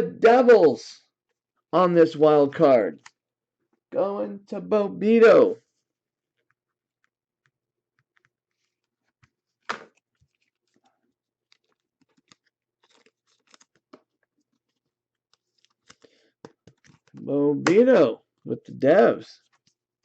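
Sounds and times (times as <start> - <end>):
card sleeves clicking and rustling: 8.0 - 17.8.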